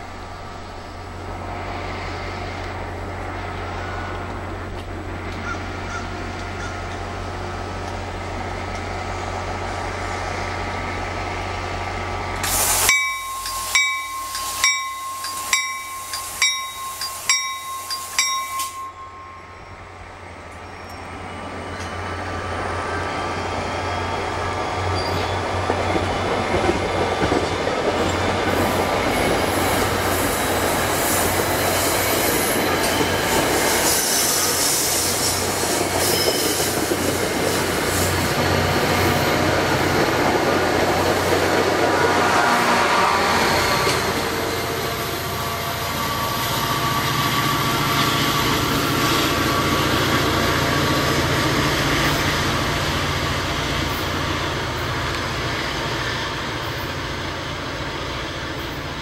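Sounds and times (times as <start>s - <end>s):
train low hum: 0.0s - 59.0s
train bell ringing: 12.8s - 22.1s, 24.9s - 26.1s, 35.9s - 37.0s.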